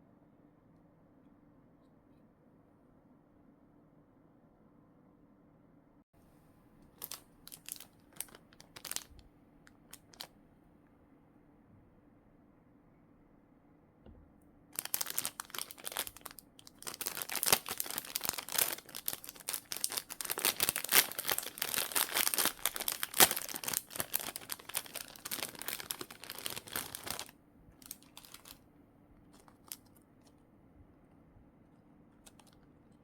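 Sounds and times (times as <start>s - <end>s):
plastic packaging crinkling: 6.9s - 10.3s, 14.8s - 28.6s, 29.3s - 30.0s, 32.2s - 32.6s.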